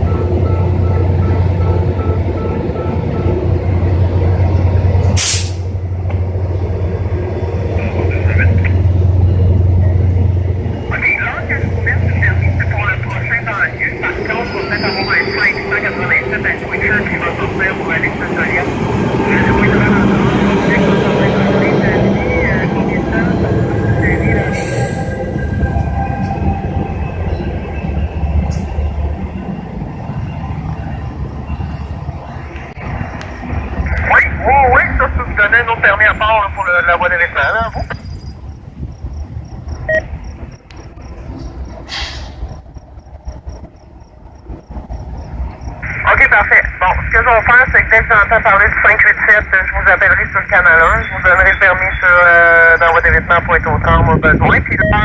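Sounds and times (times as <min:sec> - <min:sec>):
diesel locomotive idling: 0:00.0 - 0:55.0
train wheels rumbling on rails: 0:00.0 - 0:55.0
air brake burst: 0:05.1 - 0:05.7, 0:24.6 - 0:25.2, 0:41.8 - 0:42.5.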